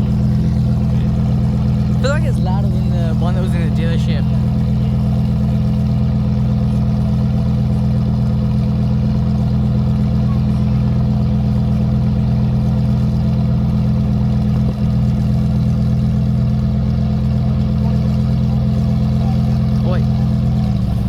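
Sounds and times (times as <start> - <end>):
sports car engine idling: 0.0 - 21.0.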